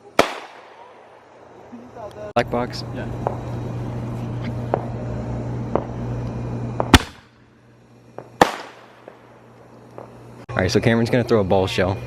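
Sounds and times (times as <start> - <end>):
small firework pops: 0.0 - 0.9, 3.2 - 3.5, 5.7 - 5.9, 6.8 - 7.3, 8.2 - 10.2
loud firework bangs: 0.1 - 1.4, 3.2 - 3.6, 4.6 - 5.0, 5.7 - 6.0, 6.8 - 7.5, 8.2 - 10.2.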